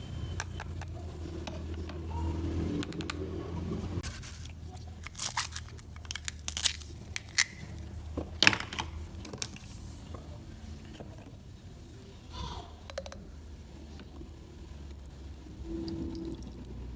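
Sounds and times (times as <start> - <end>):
toy food cracking and tearing: 4.0 - 9.7.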